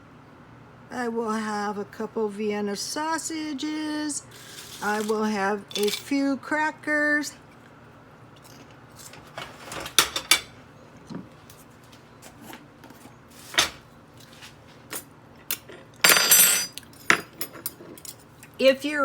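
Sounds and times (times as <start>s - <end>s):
dishes and utensils clinking: 4.4s - 6.1s, 15.5s - 18.2s.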